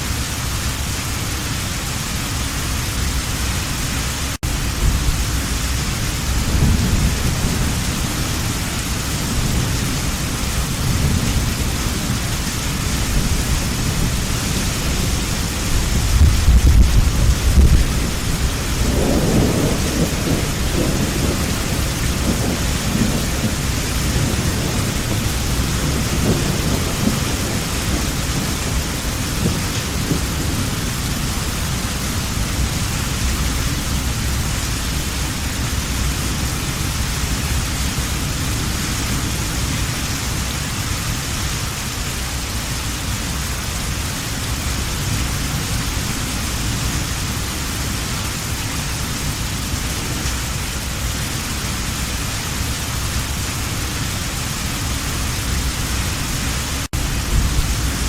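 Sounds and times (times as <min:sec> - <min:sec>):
heavy rain: 0:00.0 - 0:58.0
thunder rumble: 0:04.4 - 0:41.2, 0:54.8 - 0:58.0.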